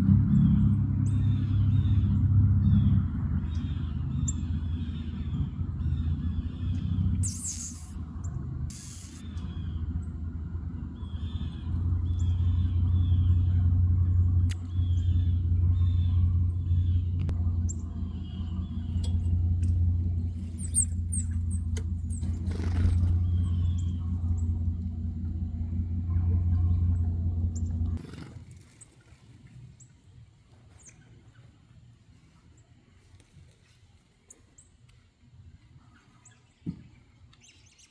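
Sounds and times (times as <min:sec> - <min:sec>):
small birds chirping: 0:00.5 - 0:28.3
motor humming: 0:03.8 - 0:08.0, 0:08.7 - 0:28.2.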